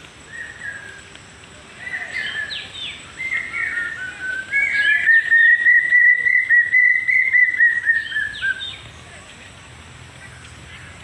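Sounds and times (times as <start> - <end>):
birds chirping: 0.0 - 11.0
bird whistling fast notes: 3.2 - 8.8.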